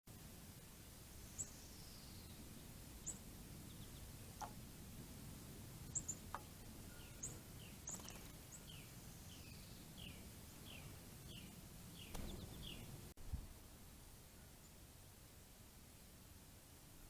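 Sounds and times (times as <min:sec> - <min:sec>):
songbird chirps: 0:00.7 - 0:13.2.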